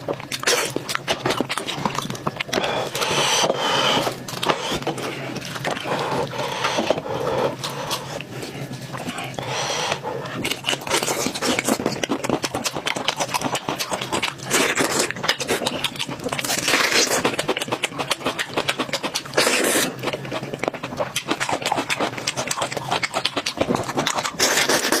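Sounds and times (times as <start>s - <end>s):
wet chewing and lip smacks: 10.2s - 25.0s.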